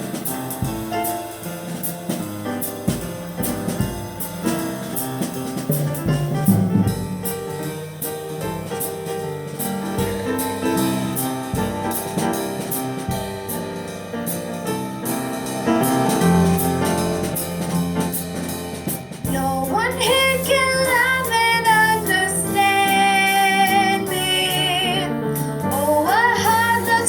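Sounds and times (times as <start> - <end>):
drum kit cymbal beat: 0.0 - 27.0
piano chords: 0.0 - 27.0
bass line: 3.0 - 11.9.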